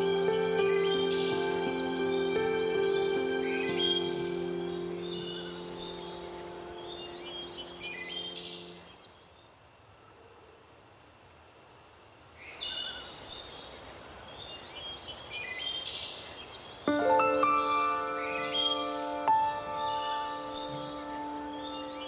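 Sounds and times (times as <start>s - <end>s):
soft sustained music chord: 0.0s - 9.0s, 16.9s - 22.0s
small birds chirping: 0.0s - 9.6s, 12.4s - 22.0s
faint steady hiss: 0.0s - 22.0s.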